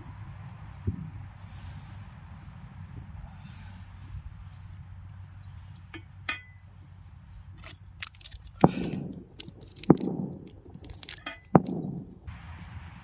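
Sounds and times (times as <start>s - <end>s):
light clinks: 5.2s - 12.3s
sharp knocks: 9.8s - 12.3s.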